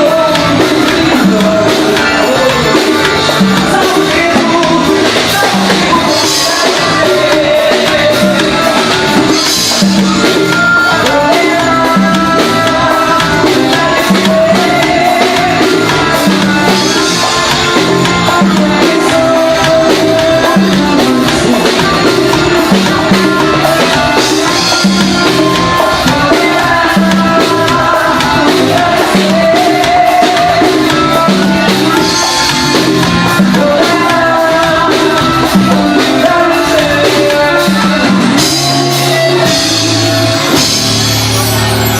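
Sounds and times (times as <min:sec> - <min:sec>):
forro music playing: 0:00.0 - 0:41.9.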